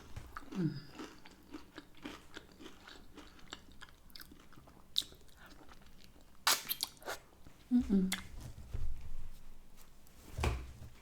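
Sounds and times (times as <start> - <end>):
person chewing: 0.0 - 7.4
wet mouth clicks and smacks: 6.4 - 7.2.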